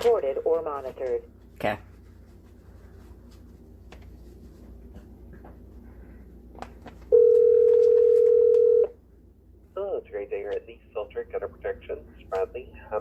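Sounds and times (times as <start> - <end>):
phone line hiss: 7.1 - 8.9.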